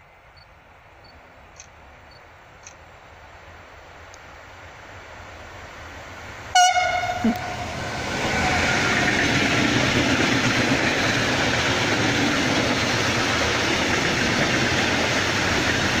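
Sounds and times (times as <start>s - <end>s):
freight train rolling past: 4.6s - 16.0s.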